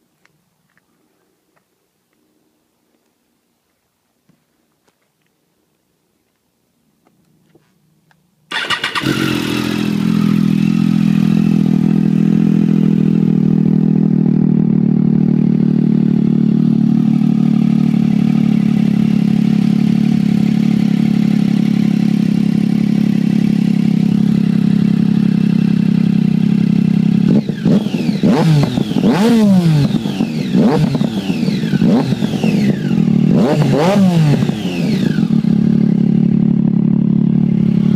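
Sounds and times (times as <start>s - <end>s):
motorcycle engine idling and revving: 8.5s - 37.9s.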